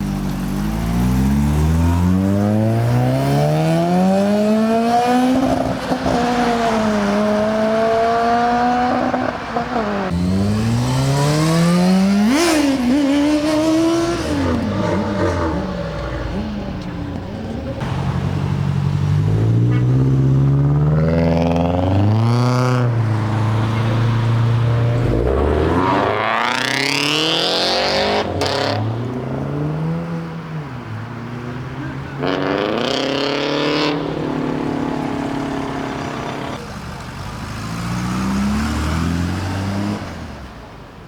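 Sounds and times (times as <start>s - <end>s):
cars accelerating hard: 0.0s - 40.6s.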